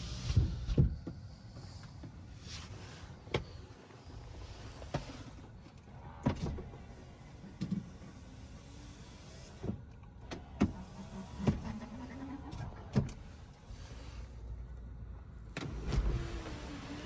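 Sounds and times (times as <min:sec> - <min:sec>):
power window motor whirring: 0:07.9 - 0:13.4, 0:15.6 - 0:17.0.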